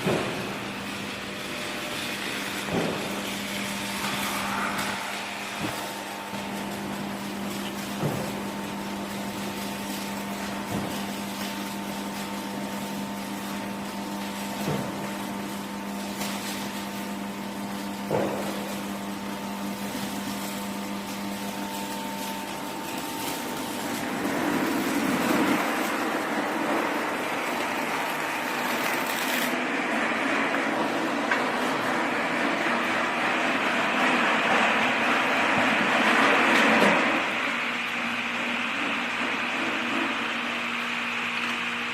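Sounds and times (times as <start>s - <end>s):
industrial machinery humming: 0.0s - 41.9s
rush of noise: 3.9s - 6.3s.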